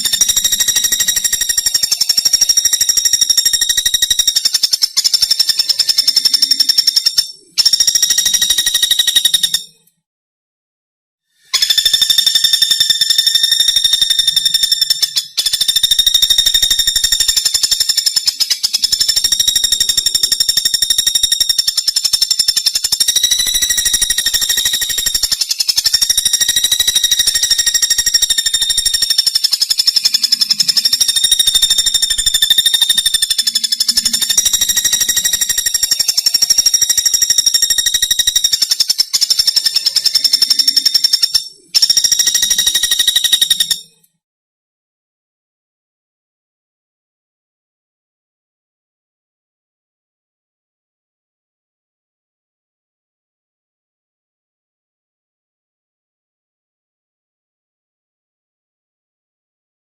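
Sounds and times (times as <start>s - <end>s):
woodpecker high rapid trill: 0.0s - 9.8s, 11.4s - 44.1s.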